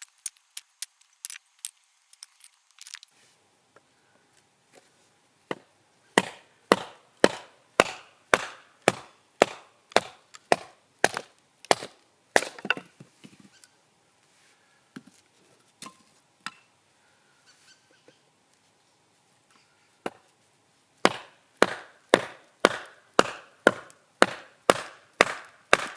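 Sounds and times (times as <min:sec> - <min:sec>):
firewood being split: 0:00.0 - 0:03.1.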